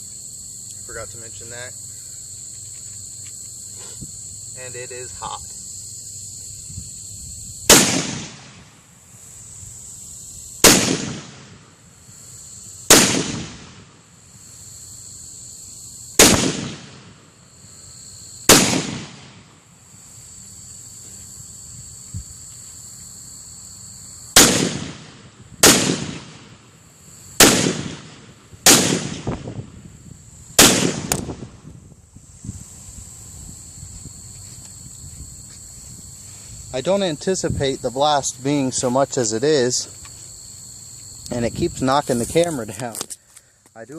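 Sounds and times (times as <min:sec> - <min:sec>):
pistol shots with echo: 0:07.7 - 0:08.6, 0:10.6 - 0:11.7, 0:12.9 - 0:13.9, 0:16.2 - 0:17.1, 0:18.5 - 0:19.4, 0:24.4 - 0:26.6, 0:27.4 - 0:29.4, 0:30.6 - 0:31.3.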